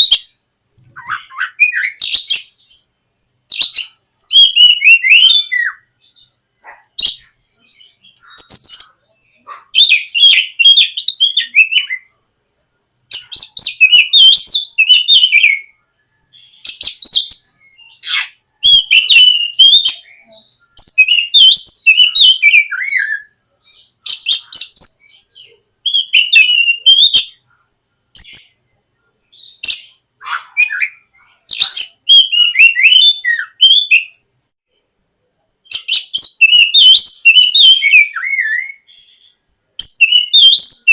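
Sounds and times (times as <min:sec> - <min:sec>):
bird singing whistles and chirps: 0:00.0 - 0:02.9, 0:03.5 - 0:12.2, 0:13.1 - 0:27.4, 0:28.2 - 0:28.6, 0:29.3 - 0:34.3, 0:35.7 - 0:40.9.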